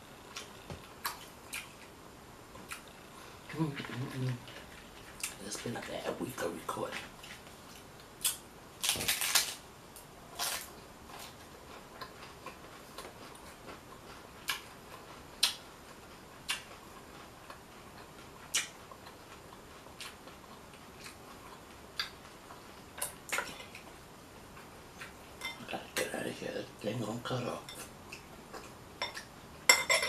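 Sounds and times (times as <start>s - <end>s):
taco shell crunching: 8.2s - 9.6s.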